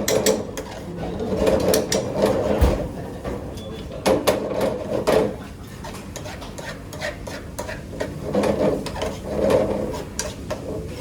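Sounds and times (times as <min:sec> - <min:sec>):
utensil scraping: 0:04.4 - 0:11.0.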